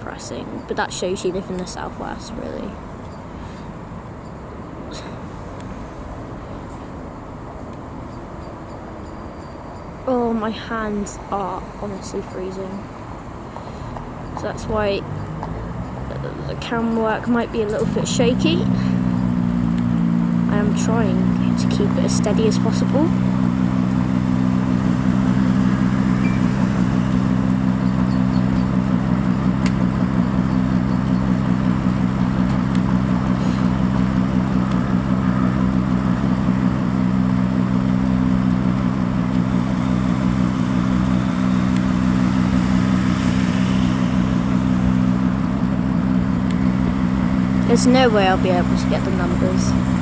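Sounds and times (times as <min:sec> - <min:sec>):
diesel engine droning: 0:00.0 - 0:50.0.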